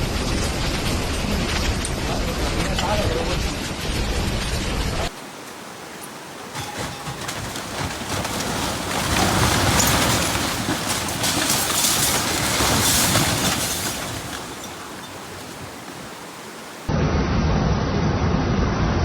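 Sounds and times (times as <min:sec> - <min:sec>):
storm wind gusting: 0:00.0 - 0:16.9
rattling: 0:06.4 - 0:16.8.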